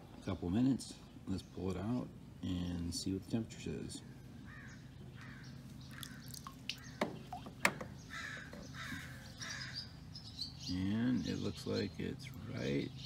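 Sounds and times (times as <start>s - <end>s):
birds calling in harsh bursts: 4.0s - 13.0s.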